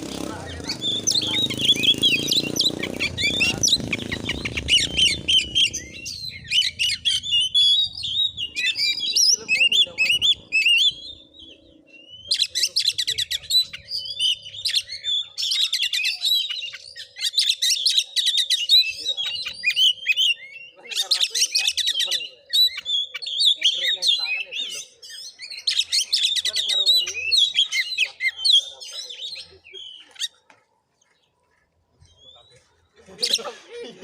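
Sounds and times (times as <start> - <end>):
magpie-robin singing: 0.0 - 31.3, 32.0 - 34.0.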